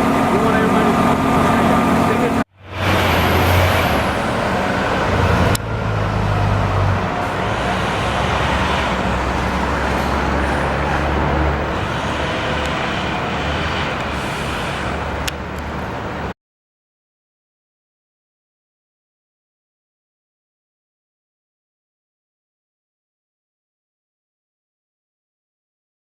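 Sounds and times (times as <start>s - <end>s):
bus engine humming: 0.0s - 16.3s.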